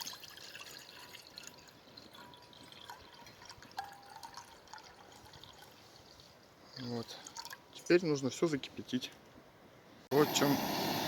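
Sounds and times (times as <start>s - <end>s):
water trickling into a pot: 0.0s - 8.0s
water drips: 0.0s - 8.4s.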